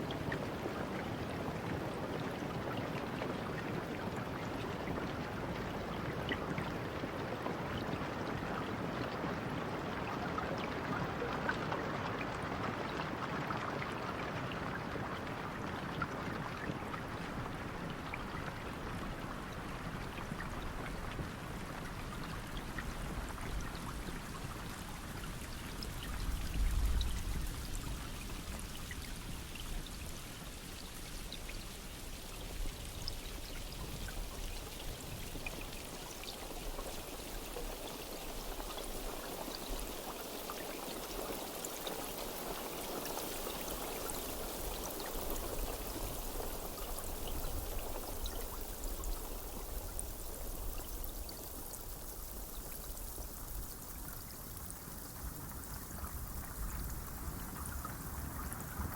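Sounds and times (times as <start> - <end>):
steady rain falling: 0.0 - 58.9
water pouring and running: 14.0 - 58.9.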